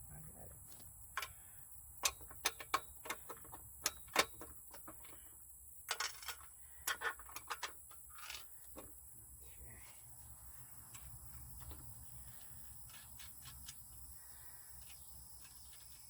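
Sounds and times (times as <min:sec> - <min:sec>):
hand tools clicking and tapping: 0:00.7 - 0:01.4, 0:02.0 - 0:09.0.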